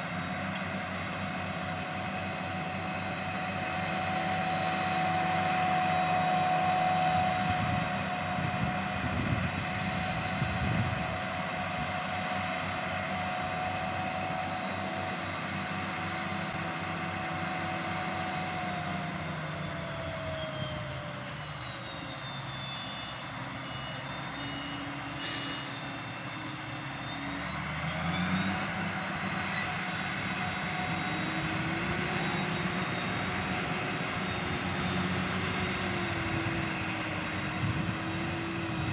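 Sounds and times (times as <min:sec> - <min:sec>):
harvester engine and chopper running: 0:00.0 - 0:38.9
brief hiss: 0:25.1 - 0:26.1.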